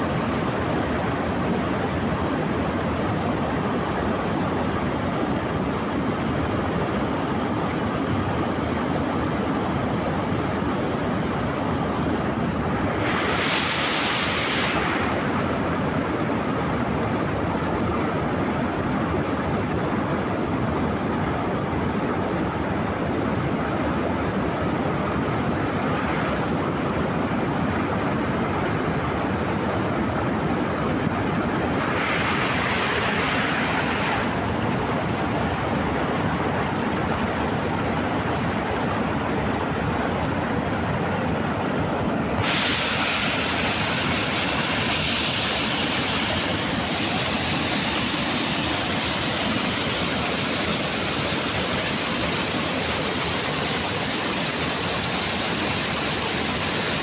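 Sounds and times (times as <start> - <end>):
rushing water: 42.4 - 57.0.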